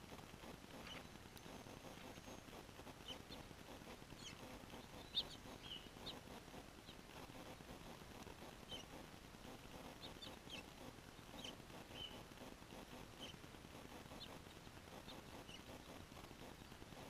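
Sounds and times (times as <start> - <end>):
low steady hiss: 0.0 - 17.0
small birds chirping: 0.0 - 17.0.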